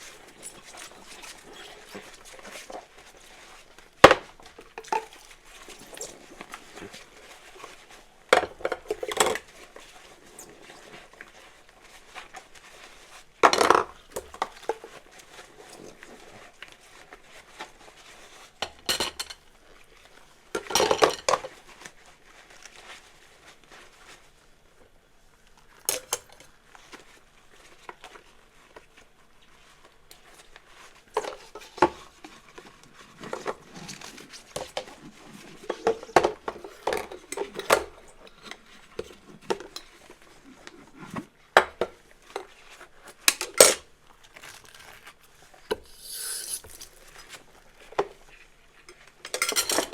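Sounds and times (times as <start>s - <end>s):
dishes and cutlery clinking: 48.9s - 49.9s.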